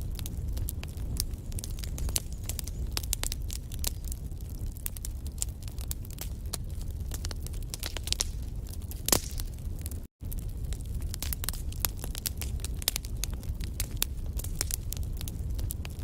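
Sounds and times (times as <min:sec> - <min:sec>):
low rumble of flame: 0:00.0 - 0:16.0
wood fire crackling: 0:00.0 - 0:16.0
sharp pops and snaps: 0:09.0 - 0:09.5.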